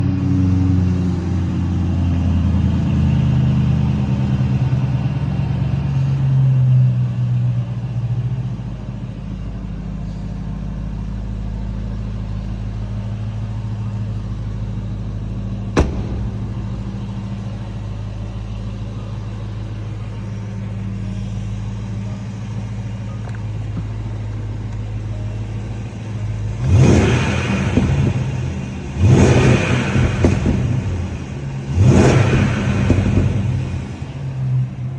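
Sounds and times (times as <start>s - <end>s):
engine idling through exhaust: 0.0s - 34.9s
engine throttle revs: 11.7s - 22.0s, 26.3s - 34.8s.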